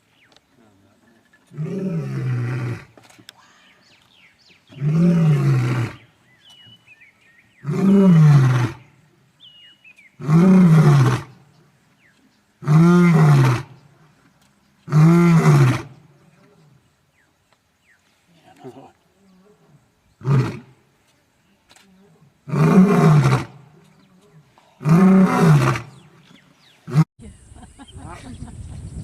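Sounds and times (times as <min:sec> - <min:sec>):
faint bird chirps: 0:03.4 - 0:05.0, 0:05.9 - 0:07.7.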